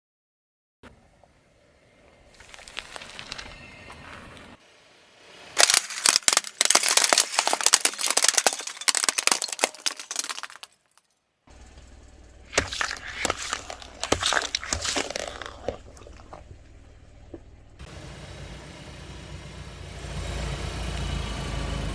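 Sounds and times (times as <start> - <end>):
tyre crushing brittle objects: 5.6 - 11.1, 12.4 - 16.6.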